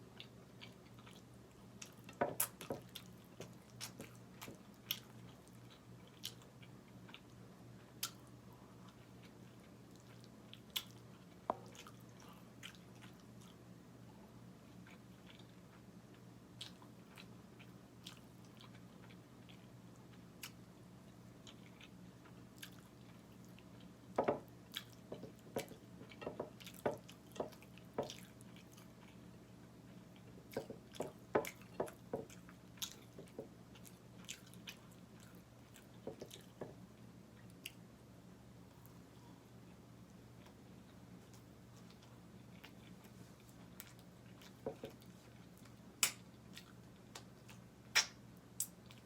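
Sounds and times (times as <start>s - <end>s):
faint steady hum: 0.0s - 49.0s
person chewing: 0.1s - 13.6s, 14.7s - 15.9s, 16.6s - 20.6s, 21.4s - 36.8s, 40.4s - 49.0s
mouth smacks and clicks: 47.9s - 48.8s.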